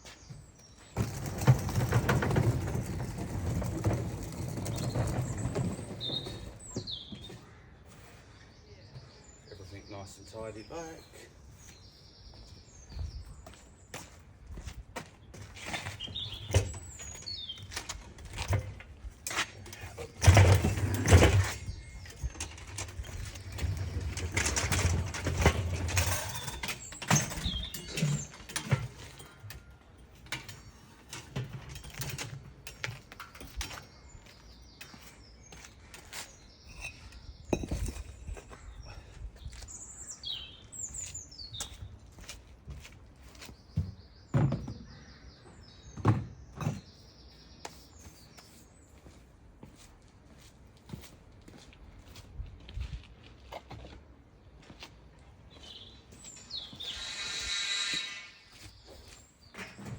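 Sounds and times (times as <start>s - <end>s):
small birds chirping: 4.6s - 18.5s, 25.8s - 49.9s, 55.4s - 59.9s
scrapes and knocks of hand work: 34.8s - 38.6s.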